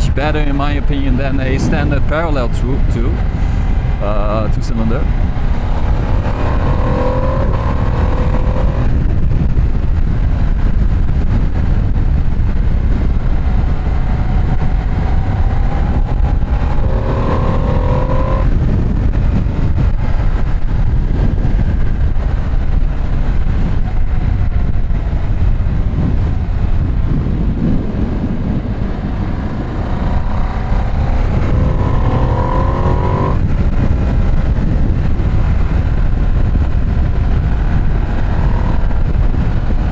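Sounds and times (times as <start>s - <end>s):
road rumble: 0.0s - 39.9s
wind noise: 0.0s - 39.9s
motorcycle engine revving and upshifting: 5.0s - 9.2s, 13.0s - 19.6s, 28.6s - 33.9s.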